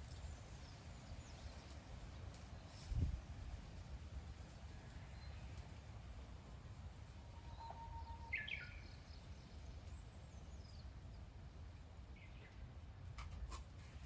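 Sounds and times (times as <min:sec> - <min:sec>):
bird chirps: 0:07.4 - 0:09.3.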